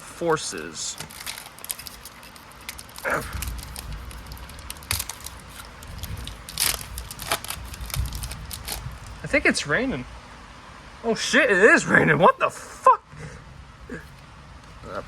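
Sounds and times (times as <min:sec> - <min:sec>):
foil wrapper tearing and crinkling: 0:00.9 - 0:09.2
low rumble: 0:02.9 - 0:10.6.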